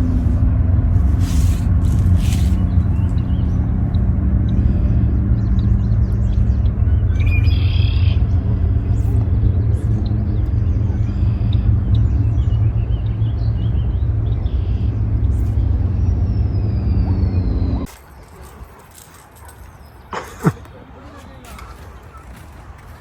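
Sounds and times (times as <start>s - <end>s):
steady low rumble: 0.0s - 17.9s
small birds chirping: 0.0s - 23.0s.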